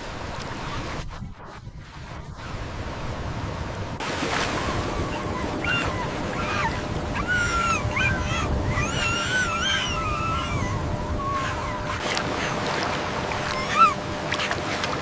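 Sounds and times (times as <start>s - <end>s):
rushing floodwater: 4.0s - 15.0s
dog whimpering: 4.6s - 12.6s, 13.4s - 14.5s.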